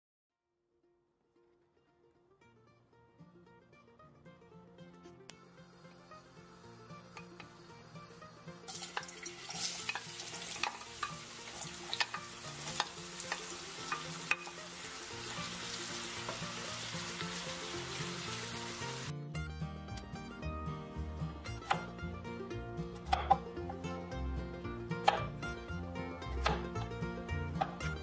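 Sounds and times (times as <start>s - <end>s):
background music: 1.4s - 28.0s
potatoes sizzling in oil: 7.2s - 19.1s
potato pieces clattering into pan: 8.7s - 18.6s.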